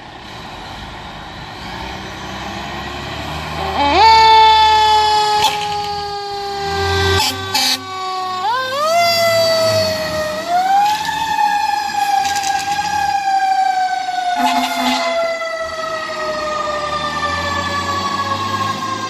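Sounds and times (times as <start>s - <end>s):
fire engine siren: 0.0s - 19.0s
horn blast: 6.4s - 8.0s, 14.4s - 15.3s.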